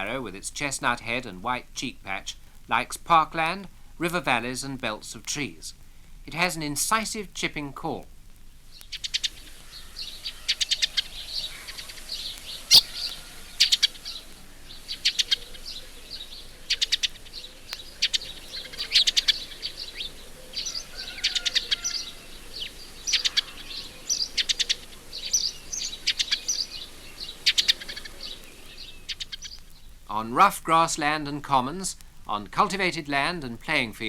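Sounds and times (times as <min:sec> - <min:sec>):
sparrows chipping: 0:08.7 - 0:30.0
soft bird chirping: 0:08.8 - 0:29.9.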